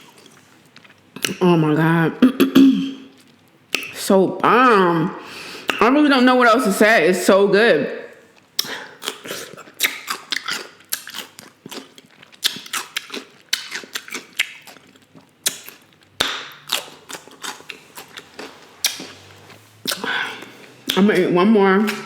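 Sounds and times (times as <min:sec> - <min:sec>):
person chewing wetly: 0:00.0 - 0:01.4, 0:03.0 - 0:04.0, 0:08.3 - 0:21.2
mouth clicks and smacks: 0:02.2 - 0:04.0, 0:08.4 - 0:17.8, 0:18.4 - 0:19.2.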